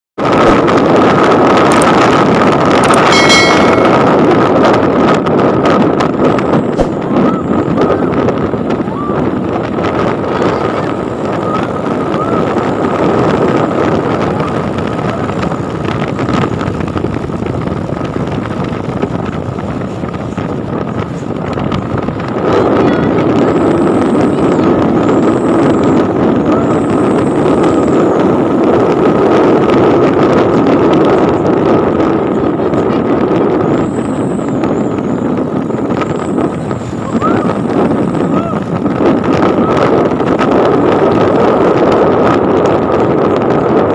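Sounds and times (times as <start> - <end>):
road traffic: 0.2 - 43.9
thin high tone: 2.8 - 4.8.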